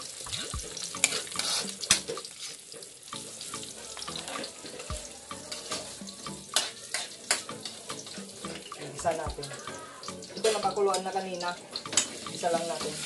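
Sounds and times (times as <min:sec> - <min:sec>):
garlic and onion sizzling in oil: 0:00.0 - 0:13.0
metal spatula scraping and clacking: 0:00.2 - 0:02.9, 0:05.5 - 0:08.8, 0:10.2 - 0:11.2, 0:11.8 - 0:13.0.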